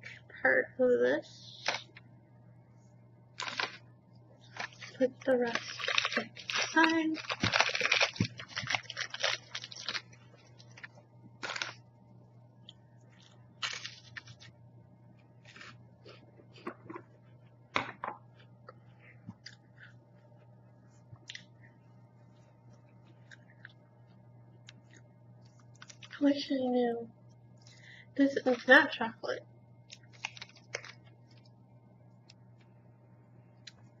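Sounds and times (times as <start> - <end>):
steady low hum: 0.0 - 34.0
plastic wrapper crackling: 3.4 - 3.8, 4.4 - 11.8, 13.2 - 14.5, 29.9 - 31.4
wafer cookie crunching: 3.4 - 11.8, 12.6 - 14.6, 24.7 - 26.3, 29.8 - 31.6.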